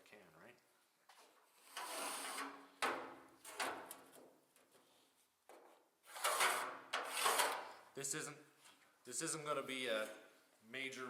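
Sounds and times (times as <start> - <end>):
scraping on sheet metal: 1.6 - 4.0, 6.1 - 7.7.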